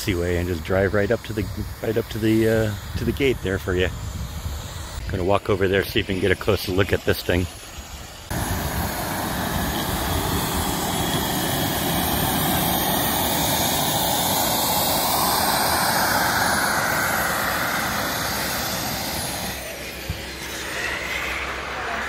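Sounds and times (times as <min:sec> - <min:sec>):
model jet turbine engine whining: 0:00.0 - 0:22.0.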